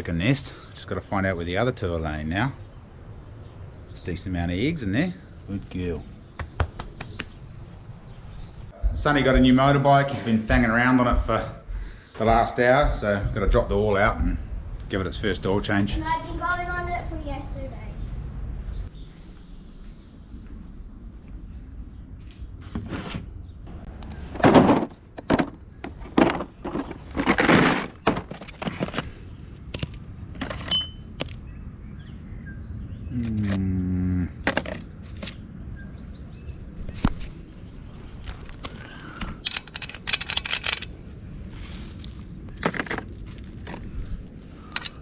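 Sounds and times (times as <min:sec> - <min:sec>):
tools clinking on metal: 0:30.4 - 0:31.5, 0:39.2 - 0:40.9.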